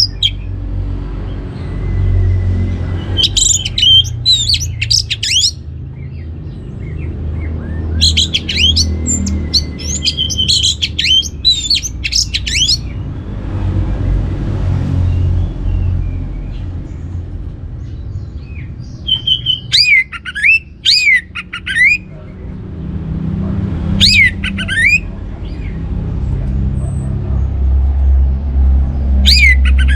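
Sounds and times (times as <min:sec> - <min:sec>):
thrush whistling song: 0:00.0 - 0:00.5, 0:02.0 - 0:05.6, 0:07.6 - 0:13.0, 0:19.0 - 0:22.1, 0:24.0 - 0:25.7, 0:29.2 - 0:29.9
steady low rumble: 0:22.1 - 0:29.9.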